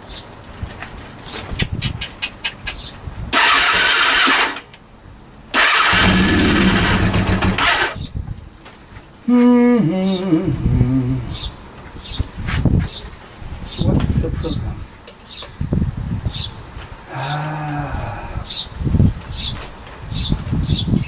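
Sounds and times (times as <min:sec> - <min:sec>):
motorcycle engine cranking on starter: 0:03.4 - 0:04.8, 0:05.6 - 0:08.1.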